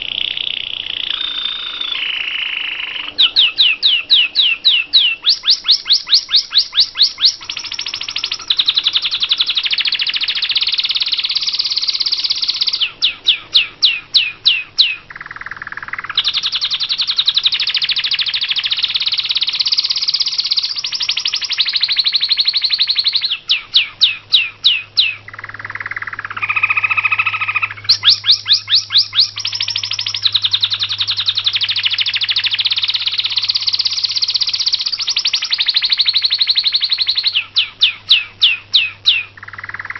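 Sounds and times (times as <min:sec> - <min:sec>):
bird whistling falling notes: 0:00.0 - 0:15.0
bird chattering trills: 0:00.0 - 0:39.9.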